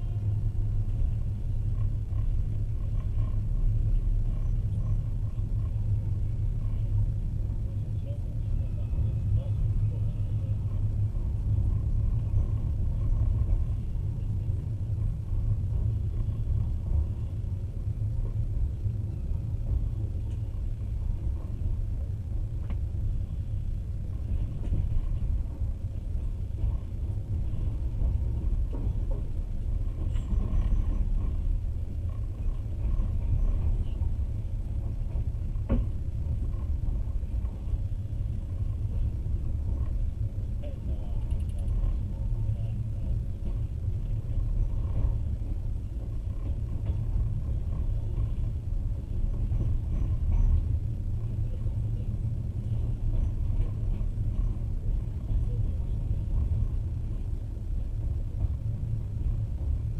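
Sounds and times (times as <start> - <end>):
train rumbling on rails: 0.0 - 59.9
faint clicks: 40.8 - 42.0.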